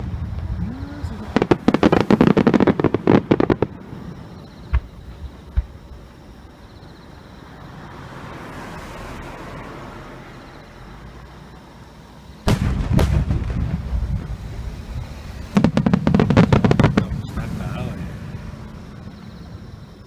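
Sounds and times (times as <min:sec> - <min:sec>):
firework shells bursting: 0:01.2 - 0:03.8, 0:12.5 - 0:18.0.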